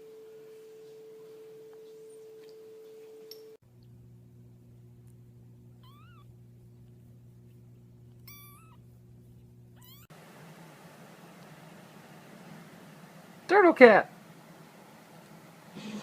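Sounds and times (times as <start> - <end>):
steady low hum: 0.0 - 16.0
cat meowing: 5.8 - 6.3, 8.2 - 8.8, 9.8 - 10.1.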